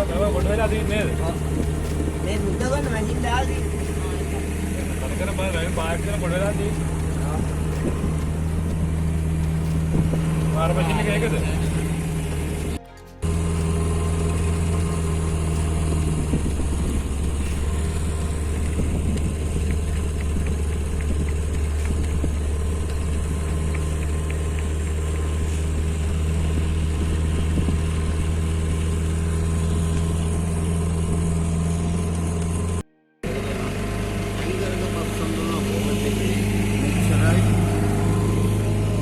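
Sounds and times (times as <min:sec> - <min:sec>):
boat engine drone: 0:00.0 - 0:39.0.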